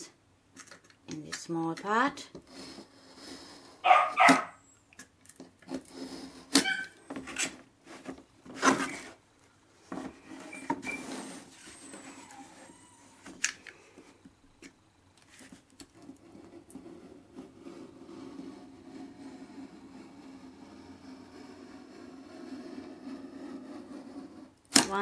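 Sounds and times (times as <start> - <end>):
knife scraping through foam board: 2.4 - 4.5, 5.6 - 9.2, 10.1 - 12.9, 15.3 - 25.0.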